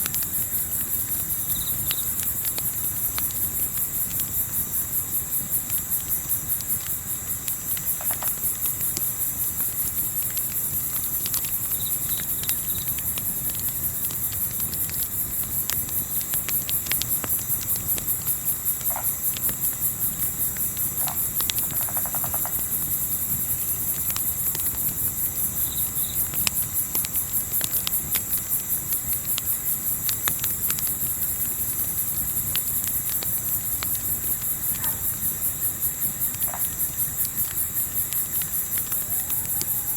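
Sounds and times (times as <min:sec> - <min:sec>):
campfire crackling: 0:00.0 - 0:39.9
crickets chirping: 0:00.0 - 0:39.9.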